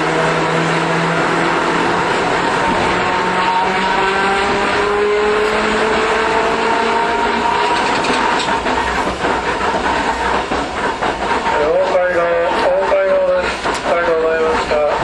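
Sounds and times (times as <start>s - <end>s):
tram motors whining: 0.0s - 15.0s
wheel-on-rail clatter: 6.6s - 15.0s.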